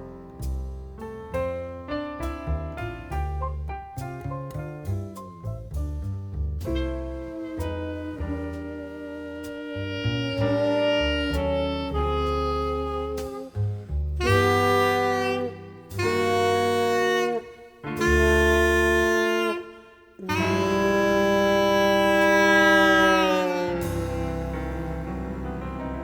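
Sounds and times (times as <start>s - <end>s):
jazz alto saxophone: 0.0s - 26.0s
brass accompaniment: 6.8s - 13.6s, 14.2s - 26.0s.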